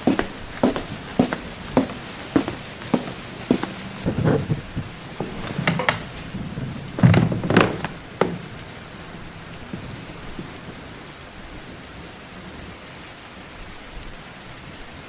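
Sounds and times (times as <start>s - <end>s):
steady rain: 0.0s - 15.0s
thunder cracks and rumble: 4.1s - 11.8s.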